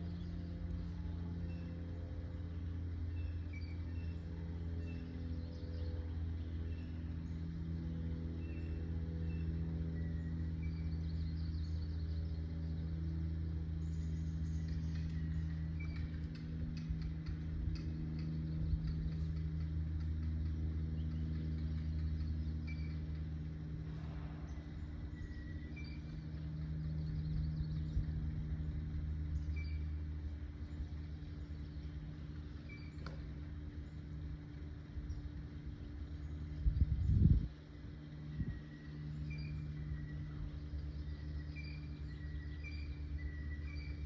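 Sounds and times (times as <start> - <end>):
low mechanical hum: 0.0 - 44.0
faint bird chirps: 38.1 - 44.0.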